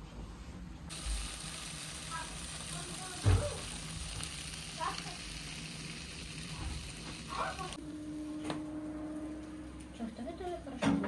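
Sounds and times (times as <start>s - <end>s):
food sizzling in a pan: 0.9s - 7.8s.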